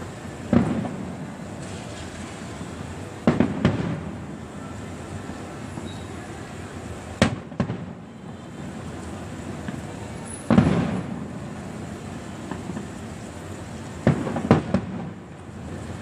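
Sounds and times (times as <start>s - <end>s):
fireworks bangs: 0.0s - 16.0s
loud firework boom: 10.4s - 11.3s.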